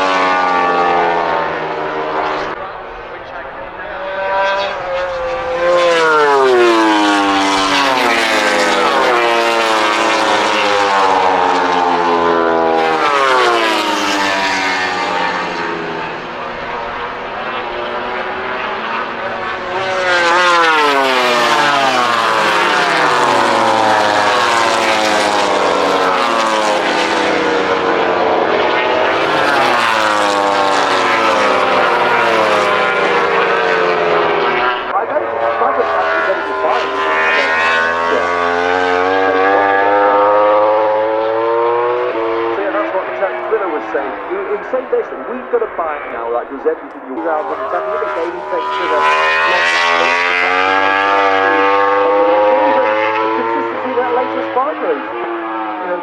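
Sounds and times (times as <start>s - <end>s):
racing motorcycles passing: 0.0s - 56.0s.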